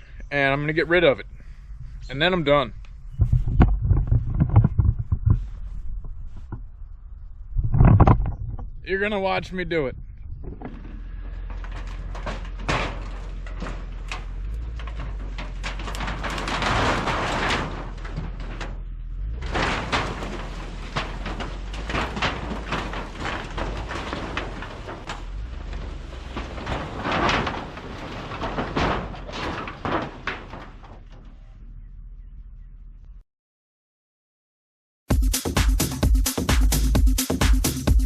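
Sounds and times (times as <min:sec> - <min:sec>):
knocks and rattling clatter: 0:00.0 - 0:06.9, 0:07.5 - 0:09.3, 0:10.1 - 0:31.9
heavy crashes: 0:10.5 - 0:31.8.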